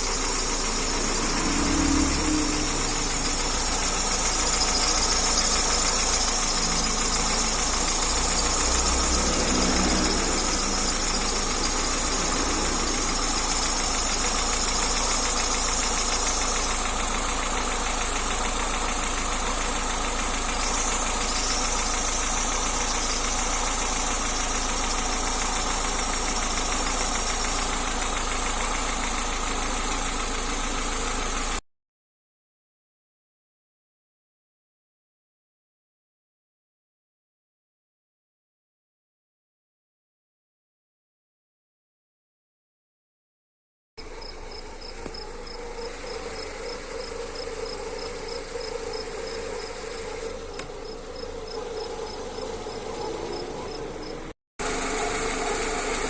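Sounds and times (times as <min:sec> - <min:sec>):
abnormal mechanical engine noise: 0:00.0 - 0:31.6, 0:44.0 - 0:56.0
car engine idling: 0:00.0 - 0:31.6, 0:44.0 - 0:56.0.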